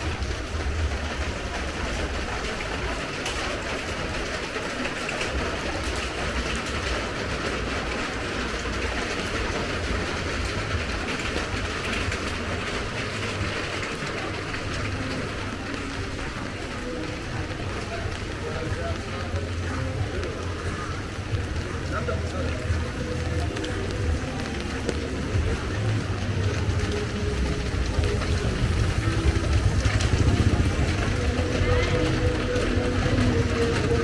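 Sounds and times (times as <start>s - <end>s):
rain falling: 0.0s - 34.0s
constant low rumble: 19.4s - 34.0s.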